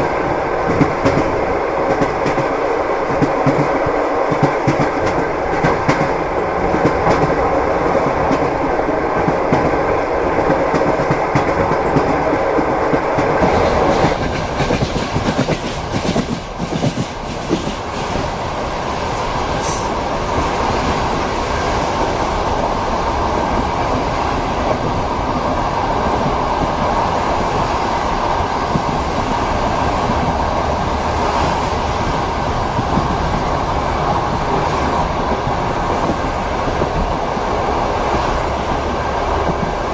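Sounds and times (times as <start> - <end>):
train wheels clacking over rails: 0.0 - 22.4.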